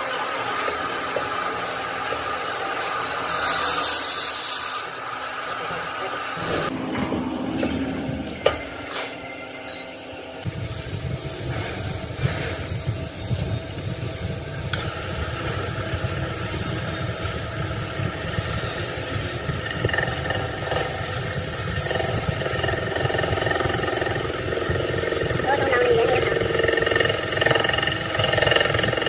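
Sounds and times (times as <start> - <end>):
engine low rumble: 6.0 - 29.0
high whining tones: 6.7 - 29.0.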